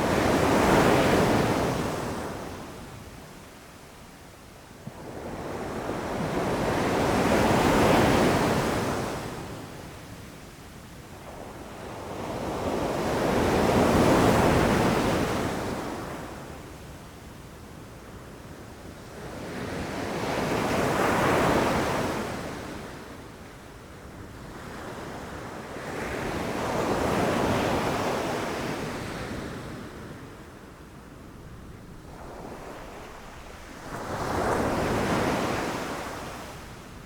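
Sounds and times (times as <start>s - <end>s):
ocean waves rushing in: 31.3s - 37.0s.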